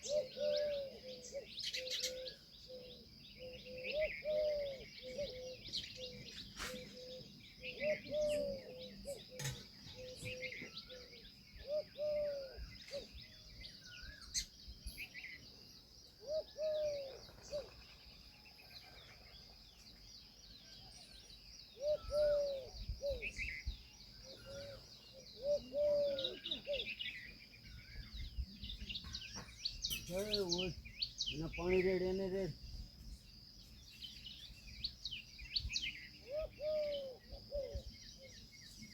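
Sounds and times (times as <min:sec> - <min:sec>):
higher bird chirping: 0:00.0 - 0:38.9
low arched bird calls: 0:00.0 - 0:38.9.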